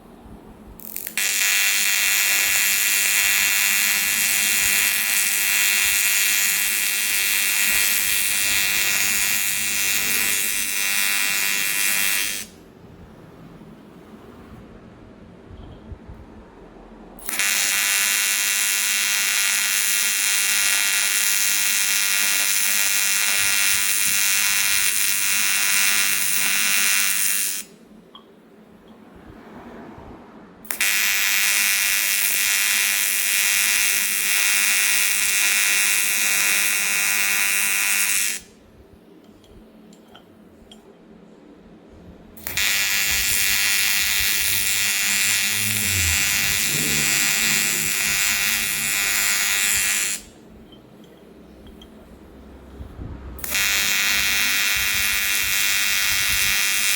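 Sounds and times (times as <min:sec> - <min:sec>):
welding arc buzzing: 0:00.8 - 0:12.6, 0:17.2 - 0:27.8, 0:30.7 - 0:38.6, 0:42.4 - 0:50.8, 0:53.4 - 0:56.9.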